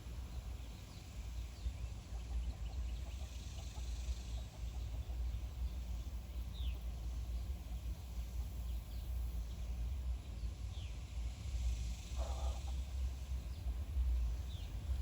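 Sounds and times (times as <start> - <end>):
steady low rumble: 5.0 - 15.0.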